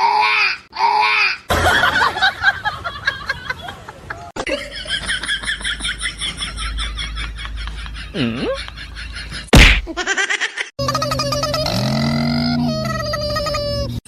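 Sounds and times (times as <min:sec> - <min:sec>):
people laughing: 0:01.5 - 0:11.7.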